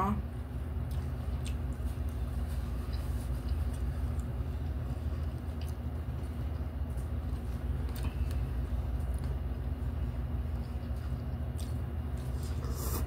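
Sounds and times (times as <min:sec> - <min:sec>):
low steady rumble: 0:00.0 - 0:13.0
chewing noodles: 0:00.6 - 0:13.0.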